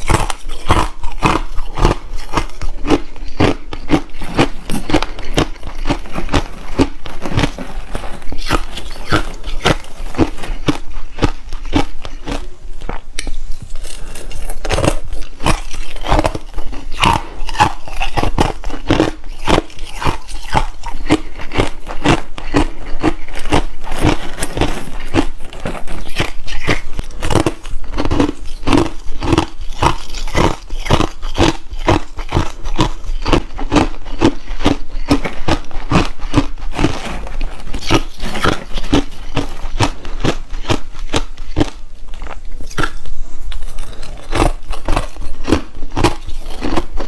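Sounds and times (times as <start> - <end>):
chewing crushed ice: 0.0 - 47.0.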